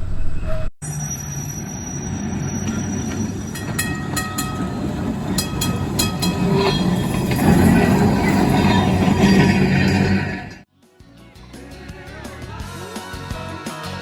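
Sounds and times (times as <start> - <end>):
streetcar rumbling: 0.0 - 10.7.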